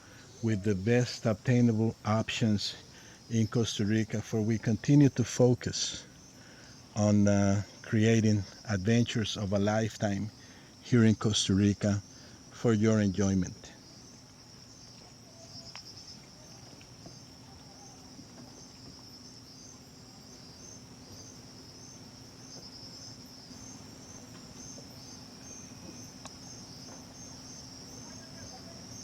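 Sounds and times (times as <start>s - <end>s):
faint low hum: 0.0s - 29.0s
night insects trilling: 0.0s - 29.0s.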